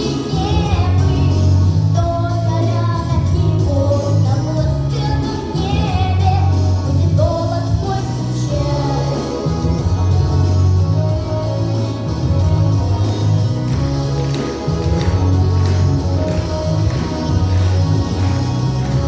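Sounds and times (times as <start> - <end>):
girl singing: 0.0 - 9.4
instrumental accompaniment with bass: 0.0 - 19.0.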